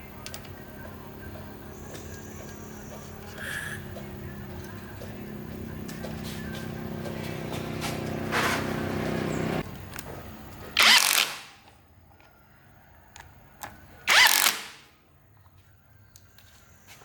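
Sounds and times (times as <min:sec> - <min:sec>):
engine running: 0:00.0 - 0:10.8.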